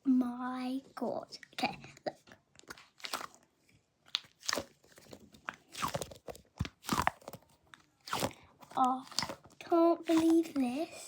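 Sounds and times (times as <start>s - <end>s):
squishy toy crackling: 4.1s - 10.6s.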